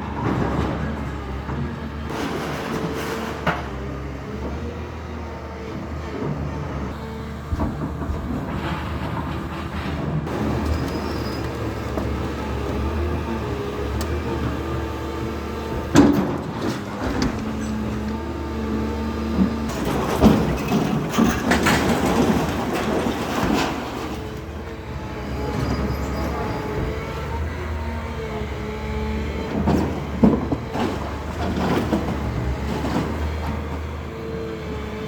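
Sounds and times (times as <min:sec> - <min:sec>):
engine running: 0:00.0 - 0:35.0
clattering and scraping: 0:00.2 - 0:04.6, 0:07.5 - 0:24.8, 0:29.5 - 0:33.9.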